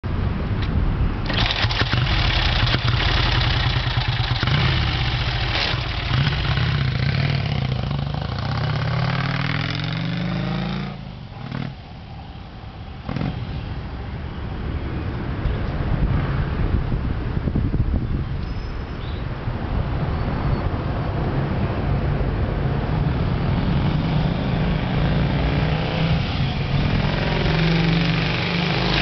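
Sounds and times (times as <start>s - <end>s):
motorcycle engine revving: 1.3s - 11.8s, 23.6s - 29.0s.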